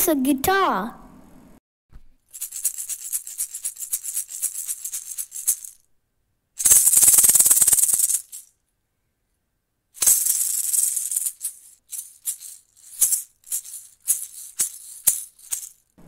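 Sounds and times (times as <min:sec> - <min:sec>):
maracas shaking: 0:02.2 - 0:05.9, 0:06.6 - 0:08.5, 0:10.0 - 0:16.0.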